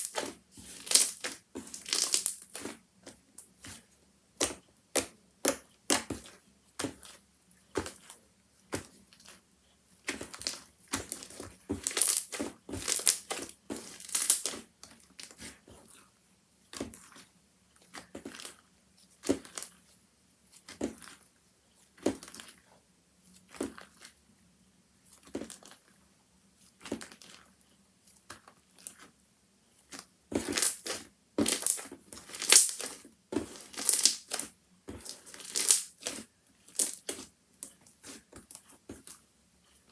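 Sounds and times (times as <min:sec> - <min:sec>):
slime squishing and crackling: 0:00.0 - 0:02.7, 0:10.2 - 0:14.7, 0:30.4 - 0:37.2.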